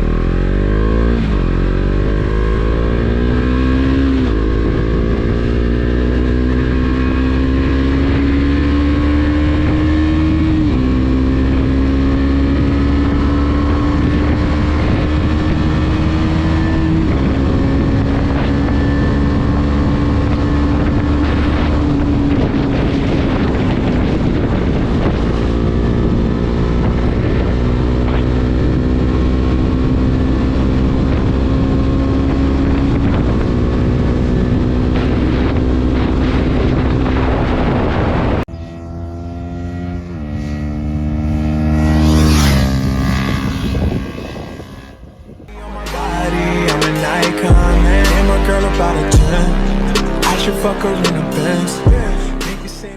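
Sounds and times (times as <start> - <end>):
wind noise on microphone: 0.0 - 38.6, 41.0 - 45.5
motorcycle engine revving: 0.0 - 52.9.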